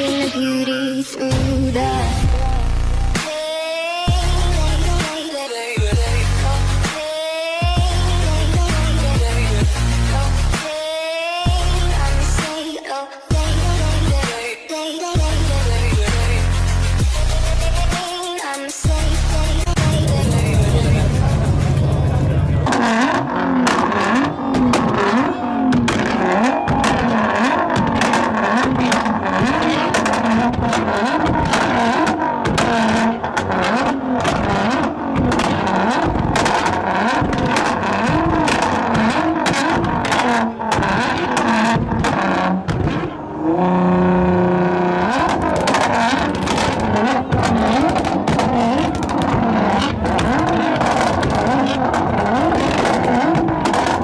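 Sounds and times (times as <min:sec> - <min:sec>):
car engines revving hard: 0:19.0 - 0:54.0
sharp exhaust cracks: 0:19.8 - 0:54.0.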